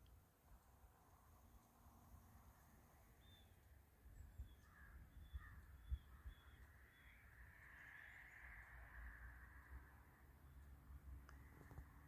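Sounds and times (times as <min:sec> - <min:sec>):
lower bird chirps: 0:03.0 - 0:08.8.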